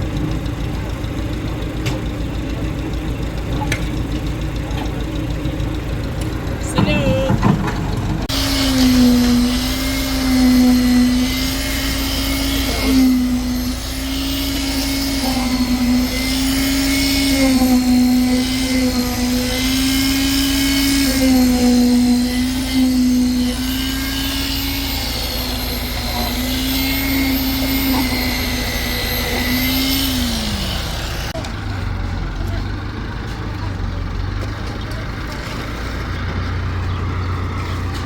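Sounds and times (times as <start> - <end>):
machinery engine whining: 0.0 - 38.0.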